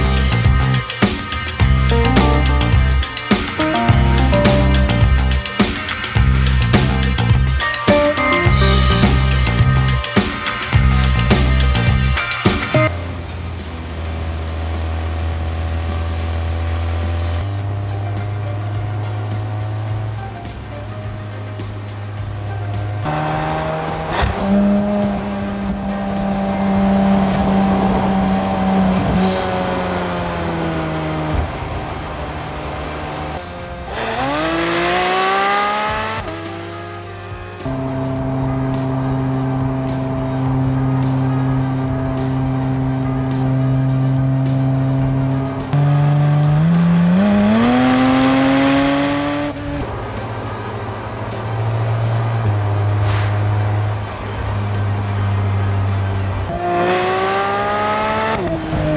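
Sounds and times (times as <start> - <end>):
car engine running: 1.6 - 5.5, 12.8 - 58.9.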